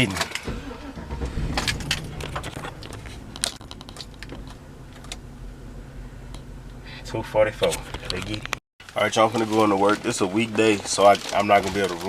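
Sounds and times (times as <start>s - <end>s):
truck engine idling: 0.0s - 8.6s.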